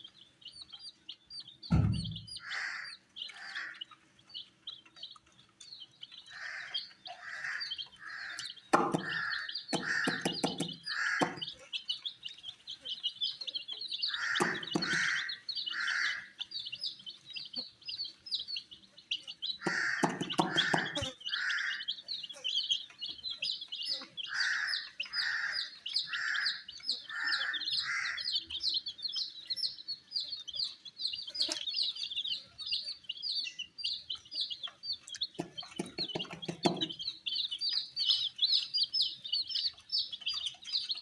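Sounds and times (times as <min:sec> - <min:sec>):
baby chicks peeping: 0:00.0 - 0:41.0
sharp taps: 0:08.4 - 0:11.5, 0:14.2 - 0:15.2, 0:19.6 - 0:21.1, 0:35.4 - 0:37.0.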